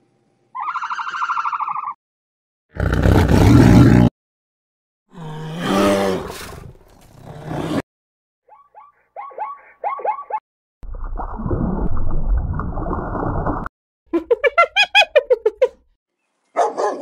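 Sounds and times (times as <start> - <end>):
tiger roar: 5.1 - 7.8.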